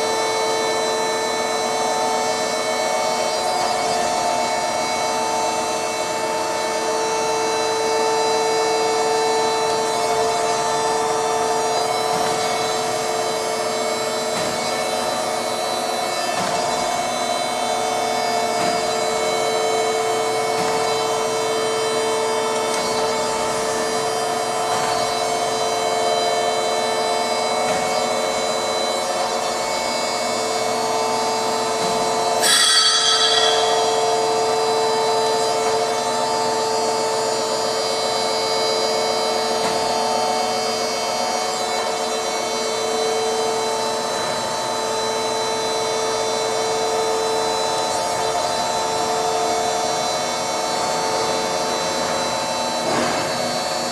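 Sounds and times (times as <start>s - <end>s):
high-pitched grinding ring: 31.0s - 37.5s
surface grinder humming: 32.4s - 36.2s.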